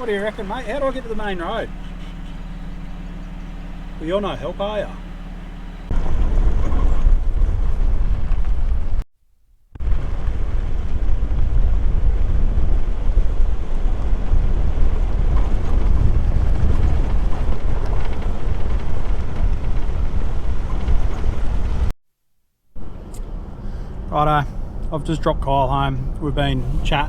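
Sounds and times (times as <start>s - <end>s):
vehicle driving rumble: 0.0s - 9.0s, 9.8s - 21.9s, 22.8s - 27.0s
wind buffeting microphone: 5.9s - 9.0s, 9.8s - 21.9s.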